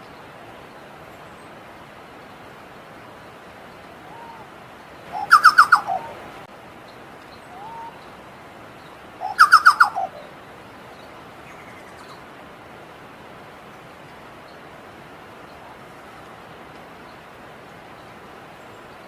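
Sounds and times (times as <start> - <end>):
background hiss: 0.0 - 19.0
bird singing: 4.1 - 6.2, 6.8 - 8.2, 8.8 - 12.3.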